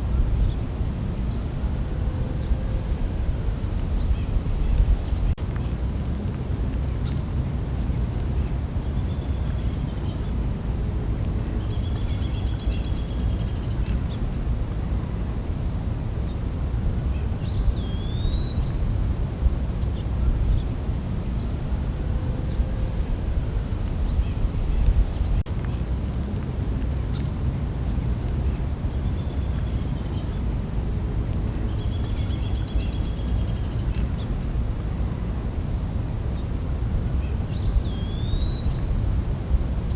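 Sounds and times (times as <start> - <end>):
crickets chirping: 0.0 - 39.9
high-pitched insect trill: 8.8 - 21.2.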